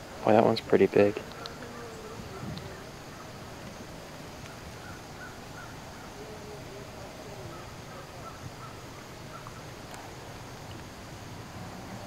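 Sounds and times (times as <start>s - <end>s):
faint short bird calls: 4.4s - 6.4s, 7.4s - 9.7s.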